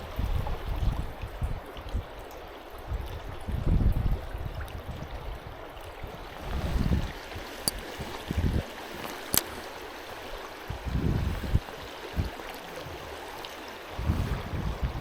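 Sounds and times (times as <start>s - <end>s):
stream water rushing: 5.4s - 15.0s
low rumbles on microphone: 14.0s - 15.0s.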